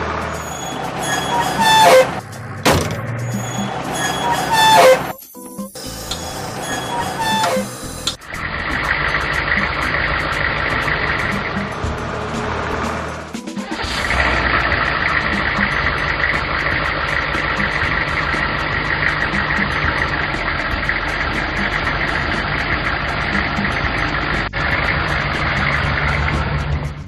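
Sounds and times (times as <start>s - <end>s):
cartoon engine idling: 5.8s - 27.0s.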